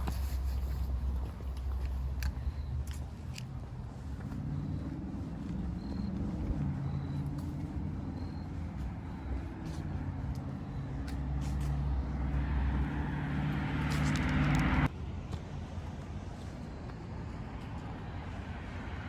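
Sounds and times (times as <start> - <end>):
passing vehicle engine: 3.9 - 14.9.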